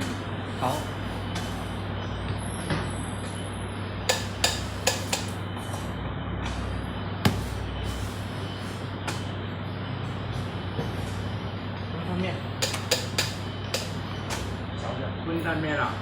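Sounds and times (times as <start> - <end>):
steady low hum: 0.0 - 16.0
bowls and utensils clinking: 12.6 - 13.9.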